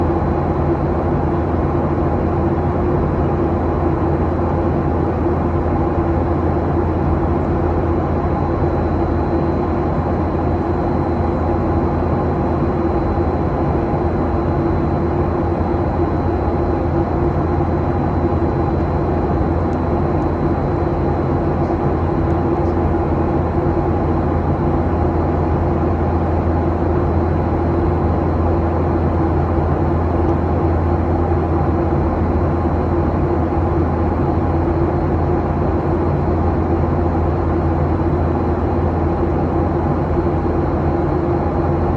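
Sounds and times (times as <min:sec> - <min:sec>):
engine and airflow drone: 0:00.0 - 0:41.9.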